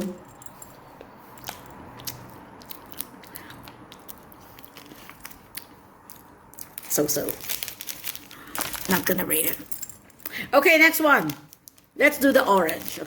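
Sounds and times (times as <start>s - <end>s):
person chewing: 0.2s - 6.8s.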